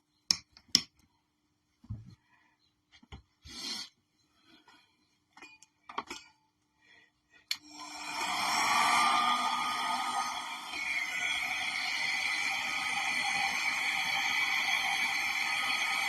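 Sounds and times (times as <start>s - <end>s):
tools and containers tapping: 5.3s - 6.4s
hairdryer blowing: 7.6s - 16.0s.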